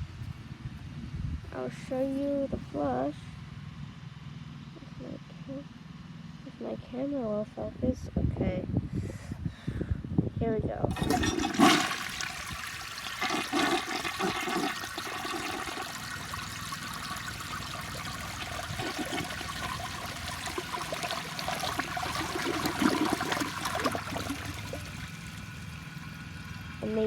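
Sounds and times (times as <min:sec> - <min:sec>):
toilet bowl gurgling: 0:10.9 - 0:27.0
toilet water rushing: 0:10.9 - 0:27.0.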